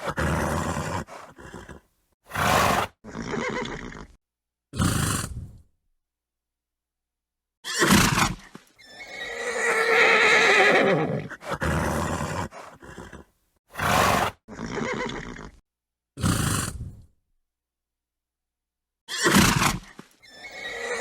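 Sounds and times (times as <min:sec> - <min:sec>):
horse snorting: 0:00.0 - 0:04.2, 0:04.8 - 0:05.6, 0:09.2 - 0:15.6, 0:16.2 - 0:17.1
horse whinnying: 0:00.0 - 0:04.2, 0:07.6 - 0:15.6, 0:19.1 - 0:21.0.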